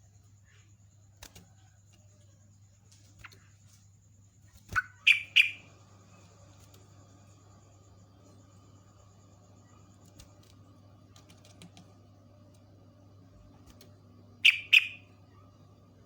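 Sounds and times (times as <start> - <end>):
faint scattered ticks: 0.0 - 16.0
bird call notes: 4.7 - 5.7, 14.4 - 15.2.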